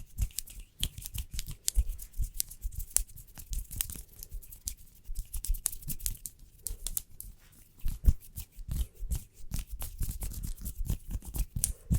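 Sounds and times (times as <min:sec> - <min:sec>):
hands rubbing together: 0:00.0 - 0:11.9.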